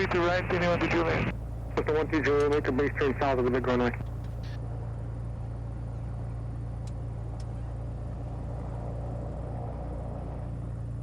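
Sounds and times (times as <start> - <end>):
aircraft piston engine droning: 0.0 - 11.0.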